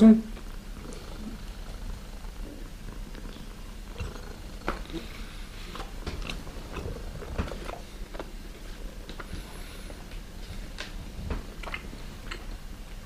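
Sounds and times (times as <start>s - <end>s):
steady low hum: 0.0s - 13.0s
close chewing with clicks: 5.7s - 13.0s.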